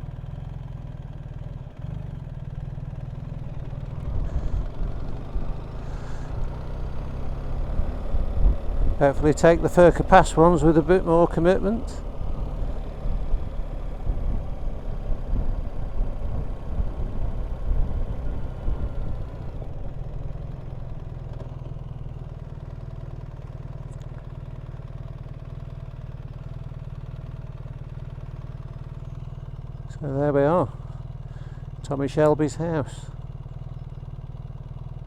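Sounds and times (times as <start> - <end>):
motorcycle engine running: 0.0 - 35.0
wind rumble on microphone: 14.0 - 19.3.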